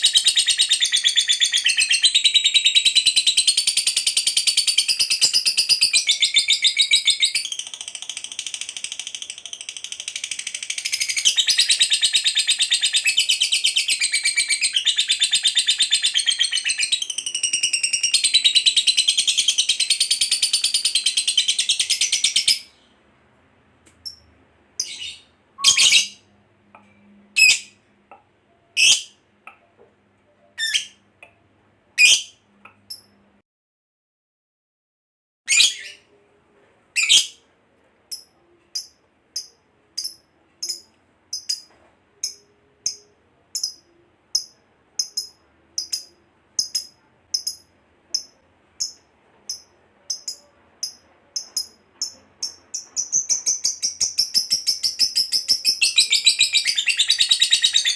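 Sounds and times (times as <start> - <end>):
lovebird chattering trill: 24.8 - 26.2, 38.1 - 47.6
short bird chirps: 24.8 - 26.2.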